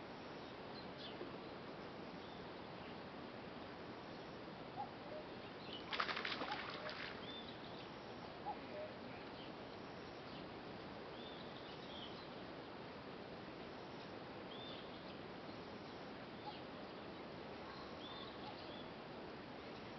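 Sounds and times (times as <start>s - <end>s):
outdoor hiss: 0.0s - 19.9s
birds chirping: 4.1s - 9.6s, 14.0s - 19.0s.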